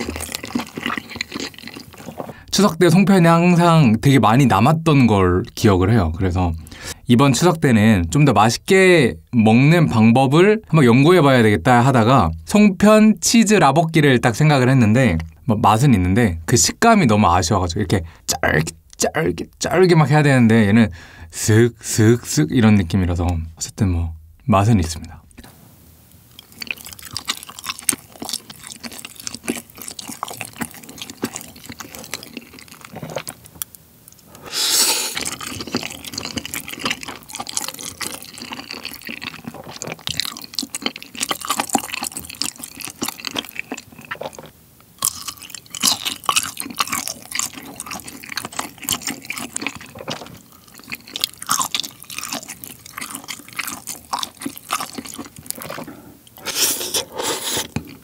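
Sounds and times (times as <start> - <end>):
wet sticky chewing: 0.0 - 2.9, 26.4 - 34.3, 34.9 - 58.0.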